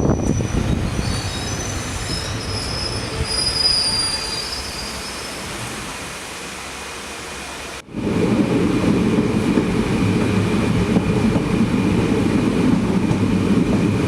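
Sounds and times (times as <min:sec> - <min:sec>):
train wheels squealing on rails: 0:00.0 - 0:05.8
train low rumble: 0:00.0 - 0:14.0.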